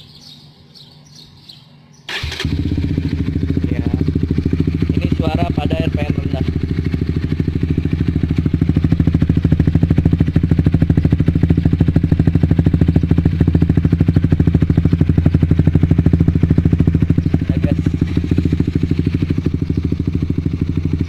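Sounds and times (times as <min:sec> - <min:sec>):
motorcycle engine idling: 0:02.1 - 0:21.0.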